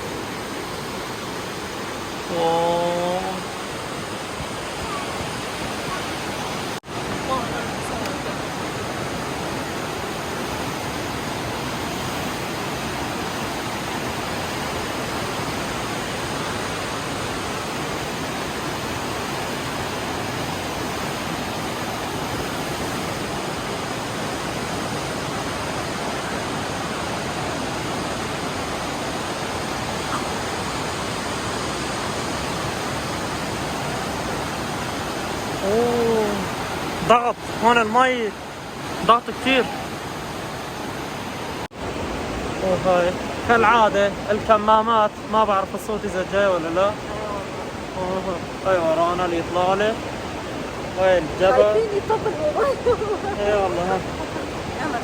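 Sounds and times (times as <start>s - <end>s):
whitewater rushing through gorge: 0.0s - 55.0s.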